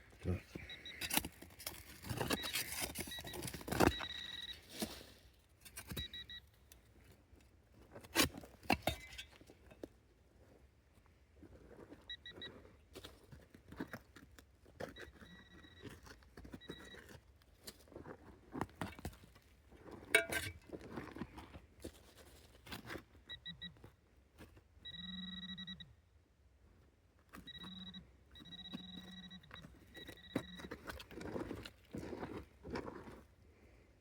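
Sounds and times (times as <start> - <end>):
digging in stony ground: 0.0 - 10.7, 11.3 - 23.8, 28.4 - 33.4
metal detector beeps: 0.2 - 5.0, 5.7 - 6.6, 12.1 - 12.5, 14.8 - 17.2, 20.2 - 20.4, 23.2 - 23.8, 24.8 - 25.9, 27.3 - 31.6
metal detector buzzing tone: 2.1 - 4.6, 15.0 - 16.0, 24.9 - 25.9, 27.4 - 30.8.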